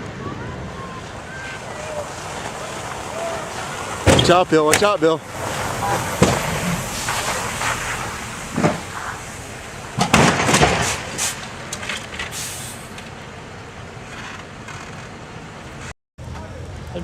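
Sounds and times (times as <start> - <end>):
loud vehicle impacts: 1.0 - 13.2.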